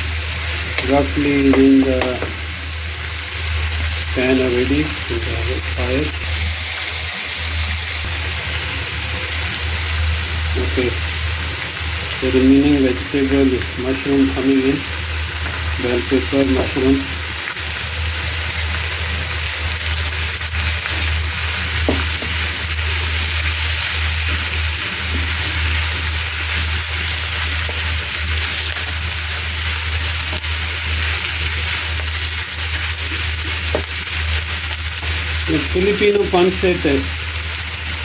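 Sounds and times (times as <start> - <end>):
vegetables sizzling in oil: 0.0 - 38.0.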